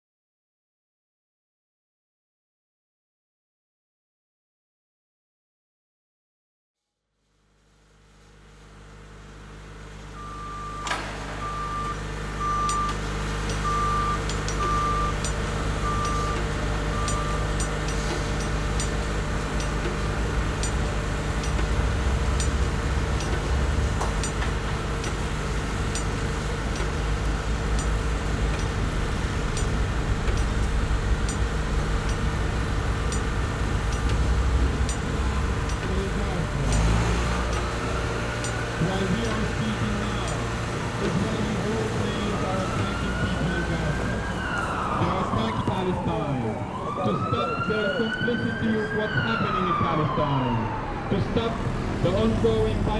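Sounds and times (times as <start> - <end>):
low vehicle rumble: 9.5 - 52.9
high reversing beeps: 10.2 - 45.3.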